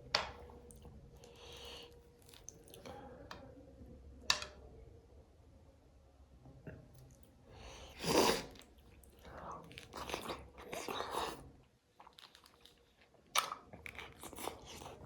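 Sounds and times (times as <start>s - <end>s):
wet chewing: 0.6s - 3.0s, 7.9s - 15.0s.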